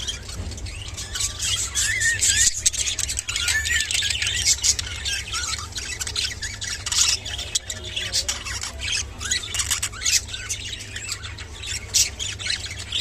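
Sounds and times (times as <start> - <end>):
budgerigars chattering: 0.0 - 13.0.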